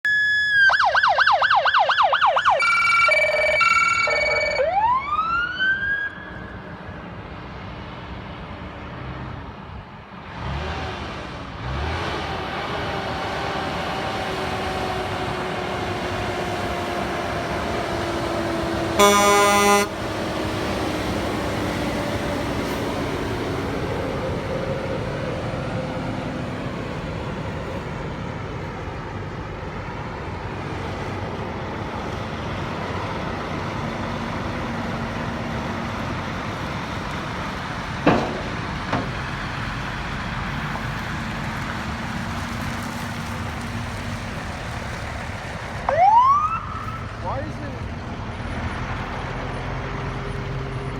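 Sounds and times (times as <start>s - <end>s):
emergency vehicle siren yelping: 0.0s - 7.1s, 16.4s - 27.7s, 45.8s - 47.5s
road noise of heavy vehicles: 0.0s - 50.9s
loud horn blast: 18.9s - 20.1s
horn tones: 19.0s - 20.0s.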